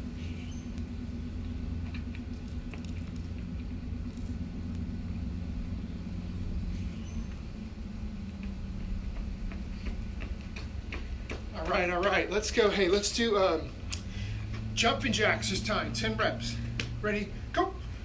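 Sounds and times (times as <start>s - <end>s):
low rumble: 0.0s - 18.0s
footsteps on ground: 8.3s - 15.3s.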